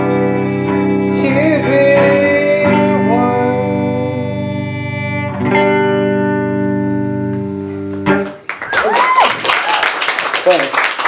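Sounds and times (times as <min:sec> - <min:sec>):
live band chords led by guitar: 0:00.0 - 0:08.5.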